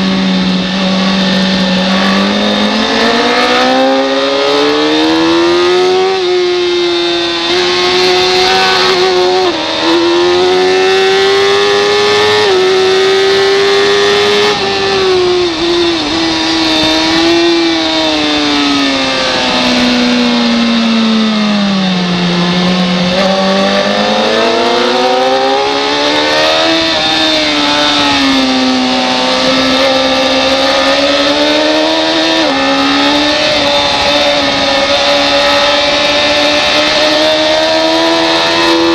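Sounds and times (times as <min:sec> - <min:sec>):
racing motorcycle engine revving: 0:00.0 - 0:38.9
wind rush: 0:12.1 - 0:38.8.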